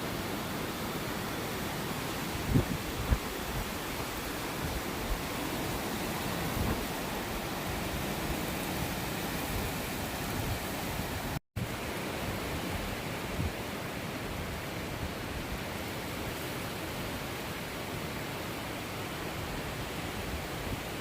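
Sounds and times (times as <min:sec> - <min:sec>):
strong gusty wind on microphone: 0:02.2 - 0:11.8.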